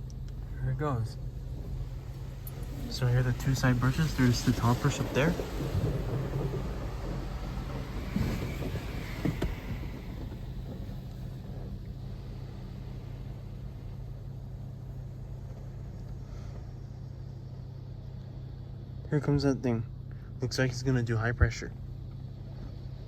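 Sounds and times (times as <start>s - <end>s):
car wash machinery humming: 0.0s - 23.0s
hiss: 1.7s - 14.4s
knocks: 2.4s - 11.8s.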